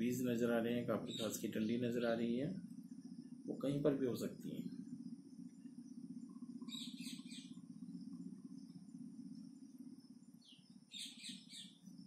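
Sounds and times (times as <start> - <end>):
steady low hum: 0.0 - 12.0
bird chirping: 1.1 - 2.0, 6.6 - 8.0, 10.3 - 12.0.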